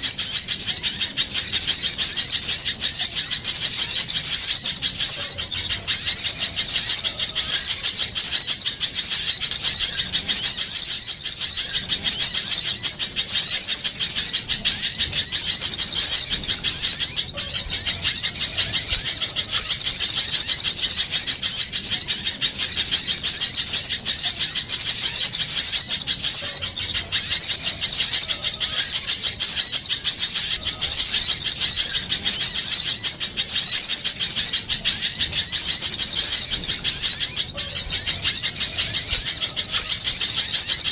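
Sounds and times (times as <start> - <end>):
flock of songbirds chirping: 0.0 - 40.9.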